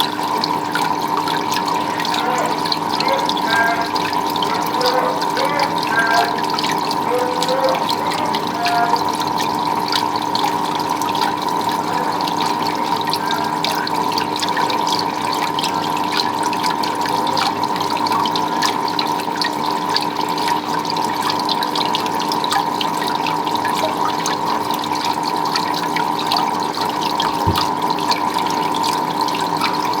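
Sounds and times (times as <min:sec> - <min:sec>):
water splashing and trickling: 0:00.0 - 0:28.1
low thump: 0:27.3 - 0:27.7.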